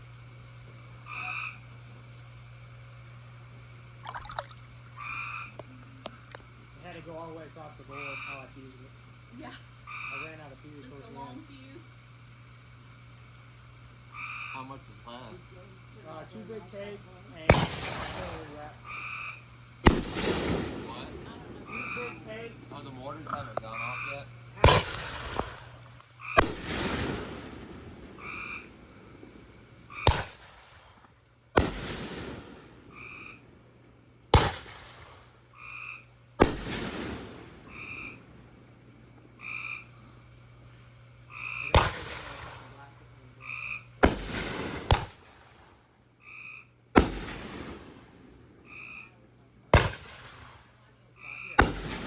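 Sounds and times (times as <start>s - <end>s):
frog croaking: 1.0s - 1.7s, 4.0s - 6.5s, 7.8s - 8.7s, 9.5s - 11.3s, 14.0s - 15.2s, 18.4s - 19.5s, 21.6s - 22.5s, 23.2s - 26.6s, 28.1s - 28.9s, 32.9s - 33.5s, 35.5s - 36.1s, 37.7s - 38.3s, 39.4s - 40.0s, 41.2s - 42.8s, 43.4s - 43.9s, 46.2s - 46.8s, 48.6s - 49.2s, 51.2s - 51.6s
fireworks bangs with crackle: 17.4s - 18.9s, 19.8s - 21.7s, 24.6s - 33.0s, 34.3s - 35.4s, 36.4s - 37.8s, 41.7s - 43.0s, 44.0s - 45.9s, 46.9s - 48.4s, 49.7s - 50.8s, 51.6s - 52.0s.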